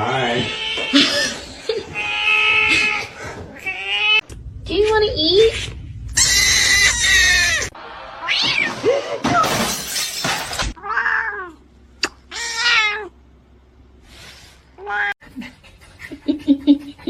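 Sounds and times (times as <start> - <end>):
cats meowing: 0.0 - 4.3, 6.2 - 8.8, 10.8 - 11.6, 12.3 - 13.2.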